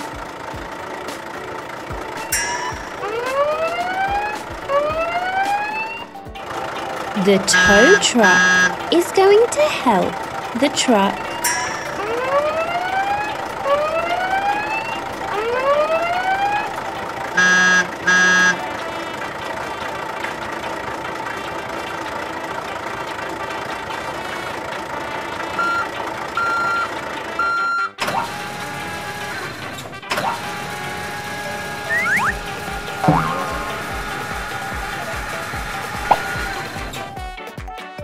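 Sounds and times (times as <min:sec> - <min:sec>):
truck horn honks: 0:07.1 - 0:09.8, 0:17.3 - 0:18.9, 0:27.4 - 0:37.1
reversing beeps: 0:07.4 - 0:08.8, 0:17.4 - 0:18.7, 0:25.6 - 0:29.2, 0:31.9 - 0:34.1
siren-like rising whoops: 0:31.3 - 0:36.9.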